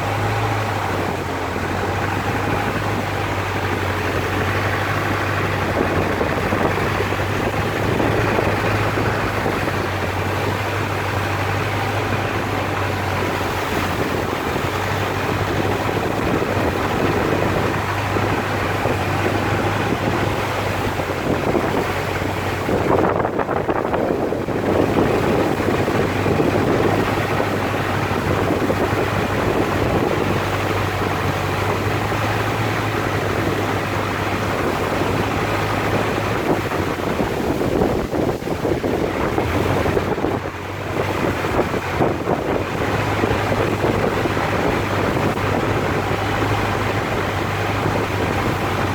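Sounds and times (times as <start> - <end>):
boat engine humming: 0.0 - 48.9
water rushing past hull: 0.0 - 48.9
wind on microphone: 0.0 - 48.9.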